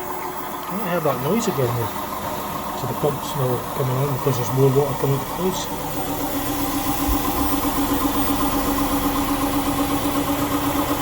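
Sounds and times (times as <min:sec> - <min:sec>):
drain pump running: 0:00.0 - 0:11.0
washing machine spinning: 0:00.0 - 0:11.0.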